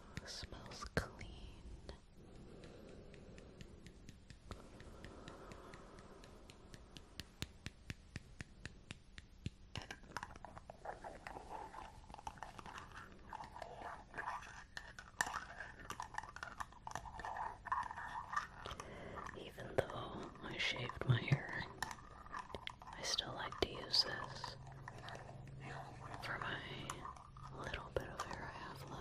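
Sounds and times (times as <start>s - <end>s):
crackly rubbing and scratching: 9.7s - 29.0s.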